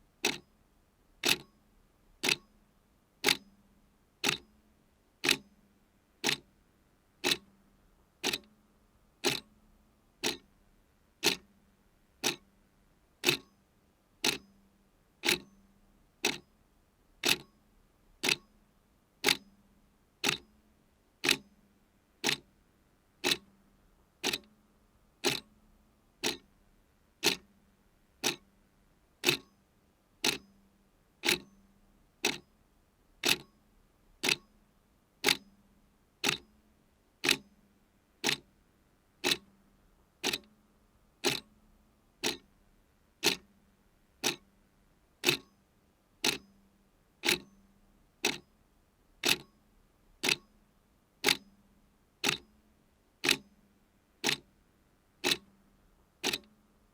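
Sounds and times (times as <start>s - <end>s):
clock ticking: 0.2s - 0.4s, 1.2s - 1.5s, 2.2s - 2.4s, 3.2s - 3.4s, 4.2s - 4.4s, 5.2s - 5.4s, 6.2s - 6.4s, 7.2s - 7.4s, 8.2s - 8.5s, 9.2s - 9.5s, 10.2s - 10.4s, 11.2s - 11.4s, 12.2s - 12.4s, 13.2s - 13.5s, 14.2s - 14.4s, 15.2s - 15.5s, 17.2s - 17.5s, 18.2s - 18.4s, 20.2s - 20.4s, 21.2s - 21.4s, 22.2s - 22.4s, 23.2s - 23.4s, 24.2s - 24.5s, 25.2s - 25.5s, 26.2s - 26.4s, 27.2s - 27.4s, 28.2s - 28.4s, 29.2s - 29.5s, 30.2s - 30.4s, 31.2s - 31.5s, 32.2s - 32.4s, 33.2s - 33.5s, 34.2s - 34.5s, 35.2s - 35.4s, 36.2s - 36.4s, 37.2s - 37.4s, 38.2s - 38.4s, 39.2s - 39.5s, 40.2s - 40.5s, 41.2s - 41.5s, 42.2s - 42.5s, 43.2s - 43.5s, 44.2s - 44.4s, 45.2s - 45.5s, 46.2s - 46.5s, 47.2s - 47.5s, 48.2s - 48.4s, 49.2s - 49.5s, 50.2s - 50.5s, 51.2s - 51.4s, 52.2s - 52.4s, 53.2s - 53.4s, 54.2s - 54.4s, 55.2s - 55.5s, 56.2s - 56.6s.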